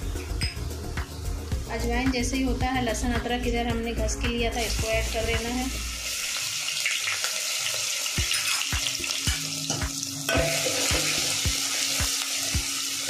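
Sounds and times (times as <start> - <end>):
spices sizzling in hot oil: 4.5 - 13.0.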